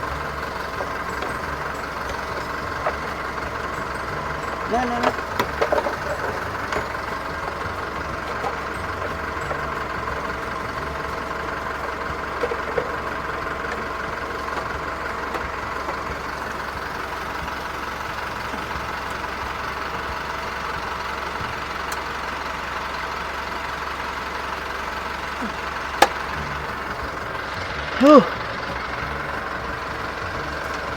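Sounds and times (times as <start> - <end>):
truck engine idling: 0.0 - 30.9.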